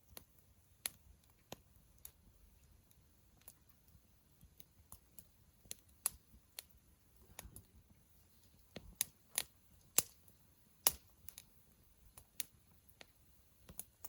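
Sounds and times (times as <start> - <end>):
campfire crackling: 0.0 - 14.0
faint low background: 0.0 - 14.0.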